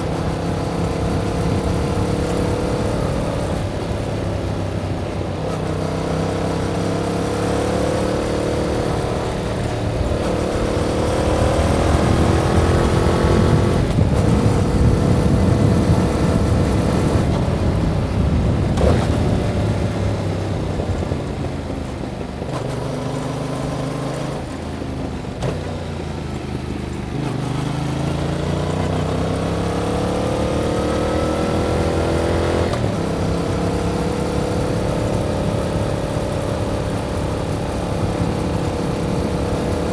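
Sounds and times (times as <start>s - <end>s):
motorcycle engine accelerating: 0.0s - 39.9s
wind rush: 8.8s - 22.5s.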